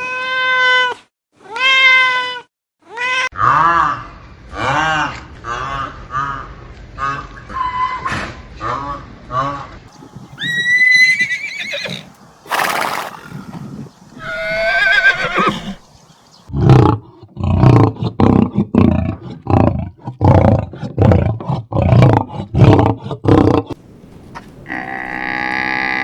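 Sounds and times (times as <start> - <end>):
horse whinnying: 10.4 - 13.5, 14.2 - 15.8.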